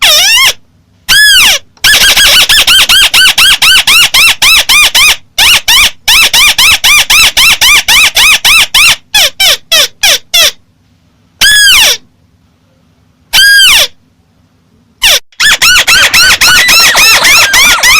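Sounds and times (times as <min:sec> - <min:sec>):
bird call: 0:15.0 - 0:17.9.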